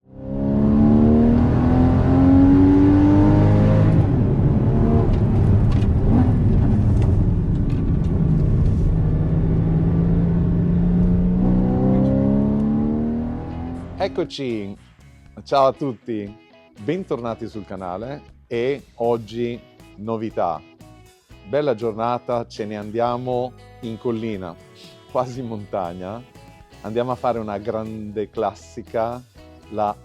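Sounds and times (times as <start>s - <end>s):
car engine revving hard: 0.1s - 7.3s, 8.0s - 14.2s.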